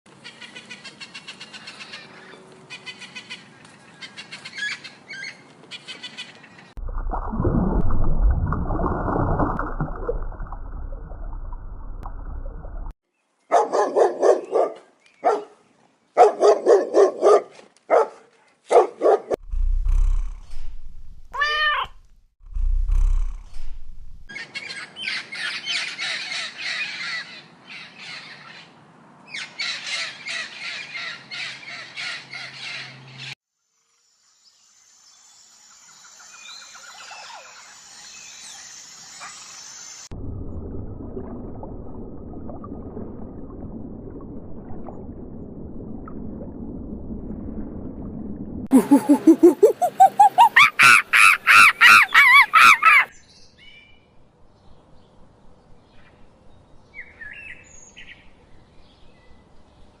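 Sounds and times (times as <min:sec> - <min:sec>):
low thumps: 0:19.4 - 0:24.3
harsh caw-like bird calls: 0:24.4 - 0:28.6, 0:29.3 - 0:33.0, 0:50.7 - 0:53.1
high bird chirping: 0:48.7 - 0:53.1.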